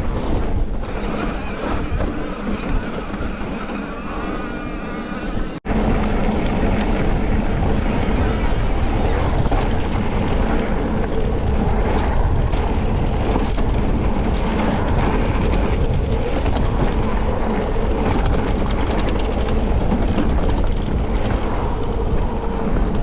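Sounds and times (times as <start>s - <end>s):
bike tyre noise: 0.0s - 23.0s
wind rushing over microphone: 0.0s - 23.0s
small clicks and rattles: 9.0s - 23.0s.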